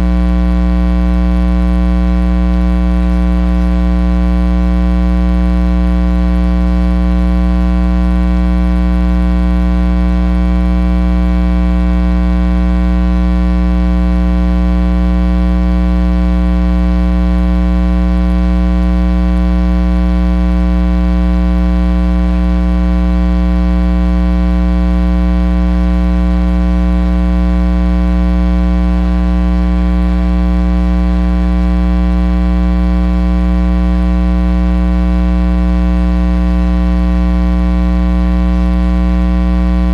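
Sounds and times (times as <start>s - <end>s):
electrical mains hum: 2.5s - 5.3s.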